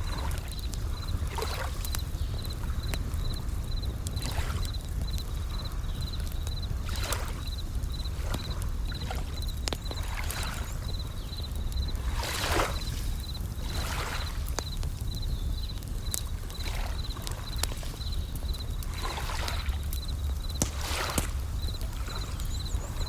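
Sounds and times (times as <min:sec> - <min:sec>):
campfire crackling and popping: 0:00.0 - 0:23.0
crickets chirping: 0:00.0 - 0:23.0
waves washing in: 0:12.0 - 0:14.6, 0:20.5 - 0:22.3.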